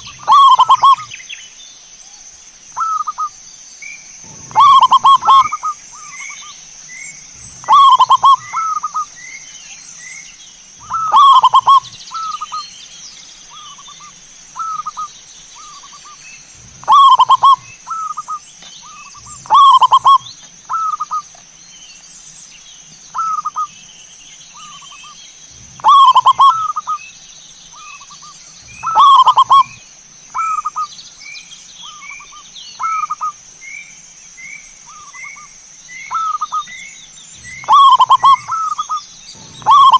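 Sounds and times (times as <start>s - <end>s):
doves cooing: 0.0s - 1.1s, 4.2s - 6.5s, 7.3s - 9.2s, 10.8s - 12.6s, 14.6s - 21.2s, 25.5s - 27.0s, 27.8s - 29.8s, 36.1s - 39.9s
faint higher chirp: 0.0s - 12.9s, 13.5s - 22.0s, 24.5s - 39.9s
high-pitched hiss: 0.0s - 39.9s.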